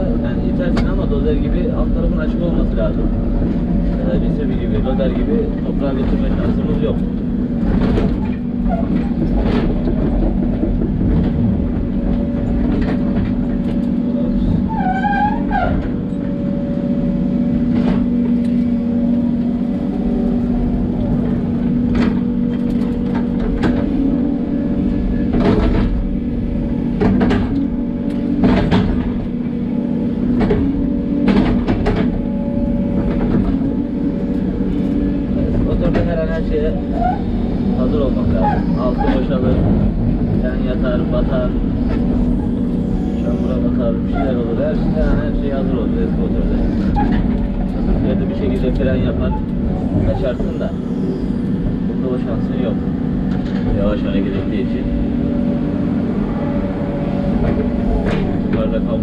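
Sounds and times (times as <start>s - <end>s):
excavator diesel engine running: 0.0s - 59.0s
wavering squeal: 14.6s - 16.2s, 36.9s - 37.5s, 38.4s - 39.3s, 49.2s - 52.0s.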